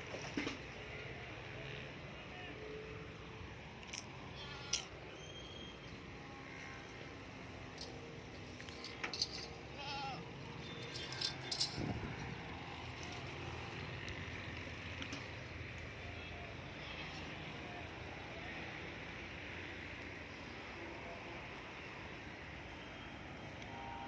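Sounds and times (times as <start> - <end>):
animals bleating: 4.4 - 4.9, 9.7 - 10.3, 16.7 - 17.6.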